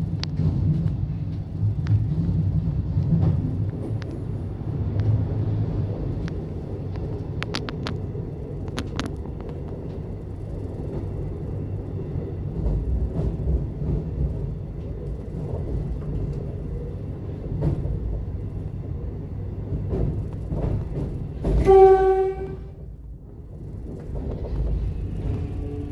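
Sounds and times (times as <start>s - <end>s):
train wheels rumbling on track: 0.0s - 25.9s
train horn blast: 21.5s - 22.8s.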